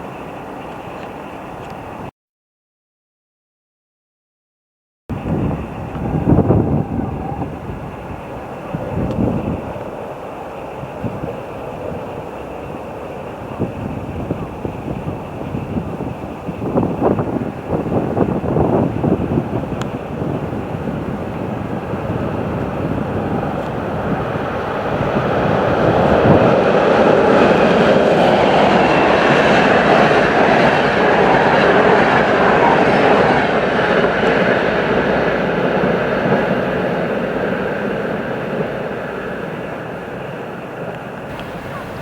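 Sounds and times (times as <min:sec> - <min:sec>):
train wheels on track: 0:05.2 - 0:42.0.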